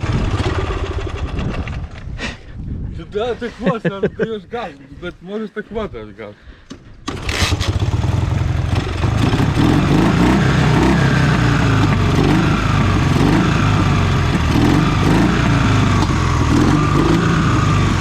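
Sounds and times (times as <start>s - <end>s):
motorcycle engine revving: 0.0s - 2.0s, 7.1s - 18.0s.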